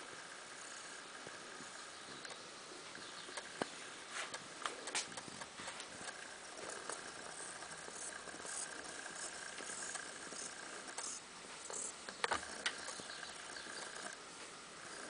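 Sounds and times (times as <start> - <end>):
faint bird chirps: 0.7 - 3.9, 6.8 - 14.2.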